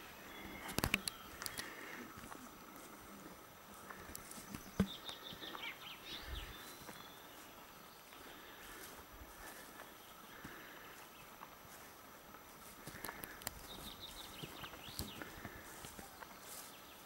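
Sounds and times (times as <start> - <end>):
bird chirping: 0.0 - 2.4, 3.9 - 8.6, 13.0 - 17.0.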